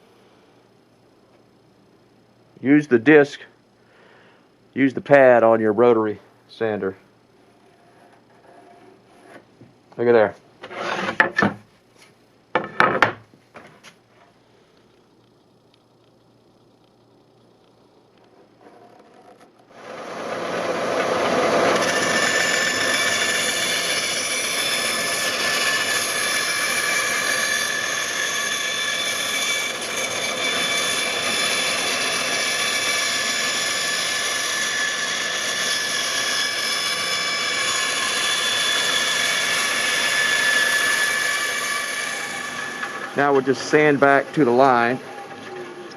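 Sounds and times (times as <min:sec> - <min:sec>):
woodworking power tool whine: 0:07.5 - 0:11.6, 0:18.1 - 0:45.9.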